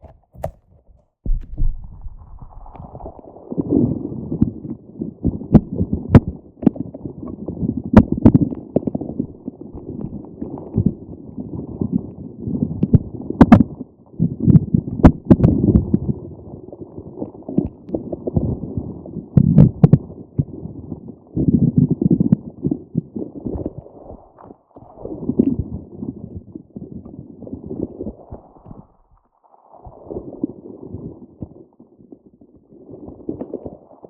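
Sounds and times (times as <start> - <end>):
stress toy squishing: 0.0 - 1.7.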